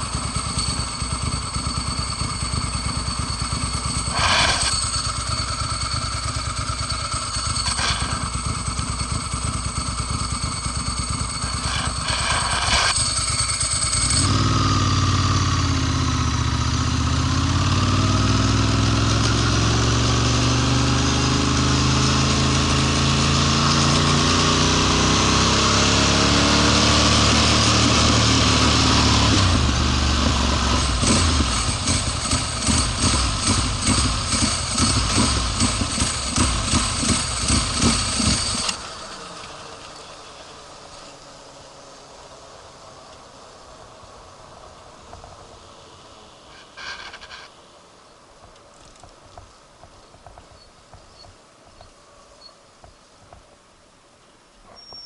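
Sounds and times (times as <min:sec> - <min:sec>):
motorcycle engine: 0:00.0 - 0:47.7
engine knocks: 0:29.2 - 0:38.8.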